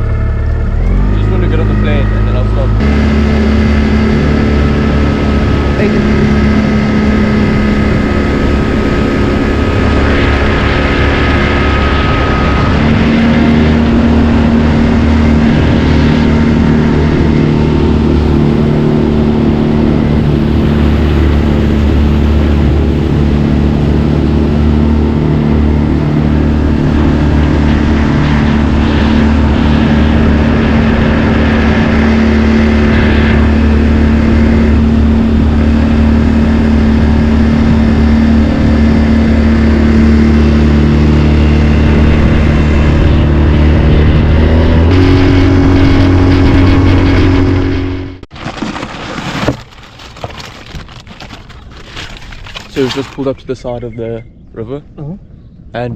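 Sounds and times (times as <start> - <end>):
outboard motor at high speed: 0.0 - 53.3
constant rush of noise: 0.0 - 55.9.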